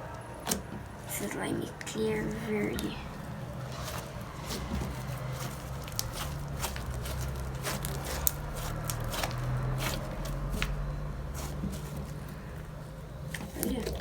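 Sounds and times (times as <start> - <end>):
slime stirred with wet clicks: 3.6 - 14.0.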